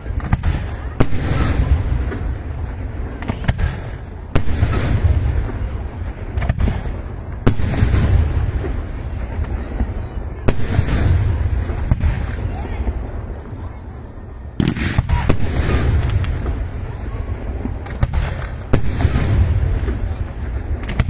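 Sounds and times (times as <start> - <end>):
fireworks bangs: 0.0 - 21.0
fireworks crackling: 0.0 - 21.0.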